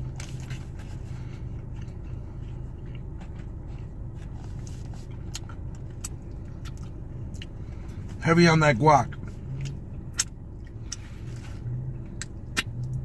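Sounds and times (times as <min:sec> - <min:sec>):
person chewing: 0:00.0 - 0:08.2, 0:09.1 - 0:13.0
car cabin hum: 0:00.0 - 0:13.0.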